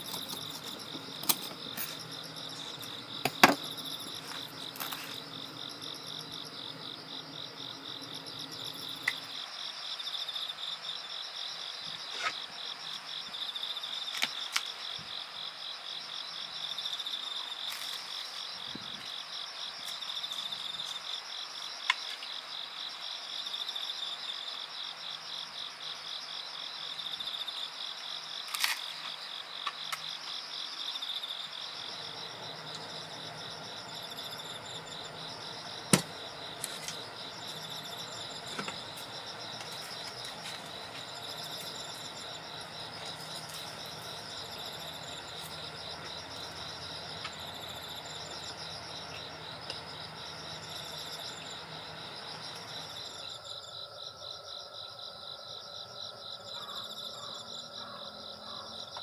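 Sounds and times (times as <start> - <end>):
low steady hum: 0.0 - 9.4, 31.7 - 53.3
insects chirring: 0.0 - 10.0, 28.7 - 59.0.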